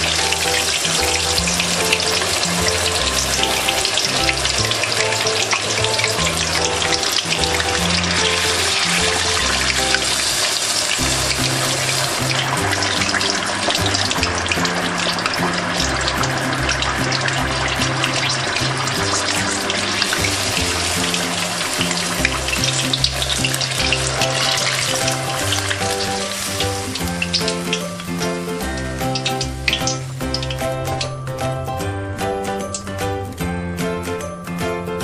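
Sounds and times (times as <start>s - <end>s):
deep-frying sizzle: 0.0s - 33.5s
background music: 0.0s - 35.0s.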